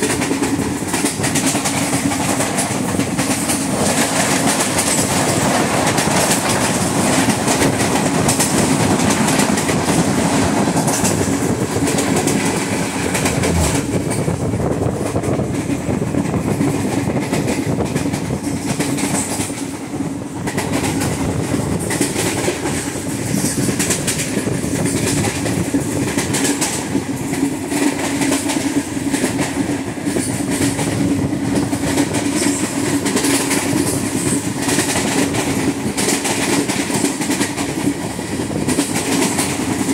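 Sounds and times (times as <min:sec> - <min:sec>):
train wheels clattering on rails: 0:00.0 - 0:39.9
steady low drone: 0:13.0 - 0:15.0.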